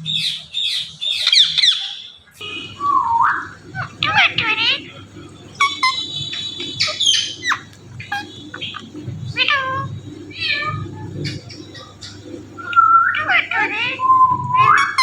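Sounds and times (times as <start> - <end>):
parakeet calling and chattering: 0.2 - 15.0.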